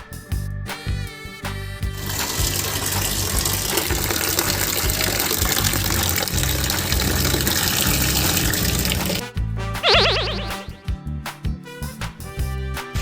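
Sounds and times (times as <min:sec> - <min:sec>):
water gushing: 0:02.0 - 0:09.2.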